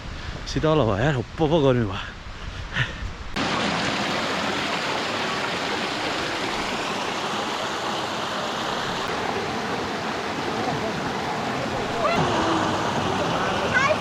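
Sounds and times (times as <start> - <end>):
stream water rushing: 3.3 - 14.0.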